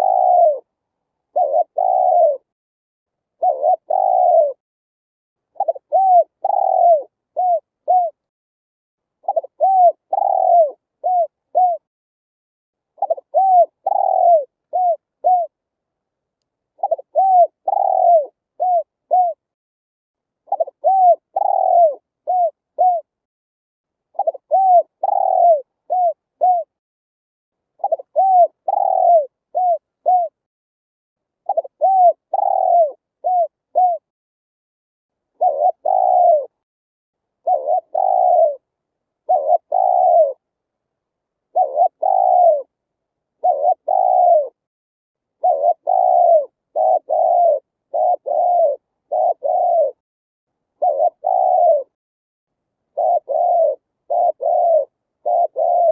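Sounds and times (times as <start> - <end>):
dove cooing: 0.0 - 0.7, 1.3 - 2.5, 3.4 - 4.6, 5.6 - 8.2, 9.2 - 11.9, 13.0 - 15.6, 16.8 - 19.4, 20.5 - 23.1, 24.2 - 26.7, 27.8 - 30.4, 31.5 - 34.1, 35.4 - 36.6, 37.4 - 40.4, 41.5 - 42.7, 43.4 - 44.6, 45.4 - 50.0, 50.8 - 52.0, 52.9 - 55.9.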